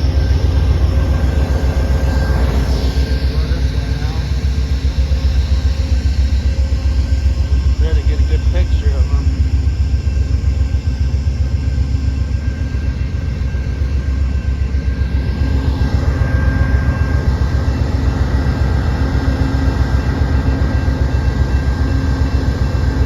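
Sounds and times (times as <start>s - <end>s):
diesel locomotive engine rumble: 0.0s - 23.0s
faint steady whine: 0.0s - 23.0s.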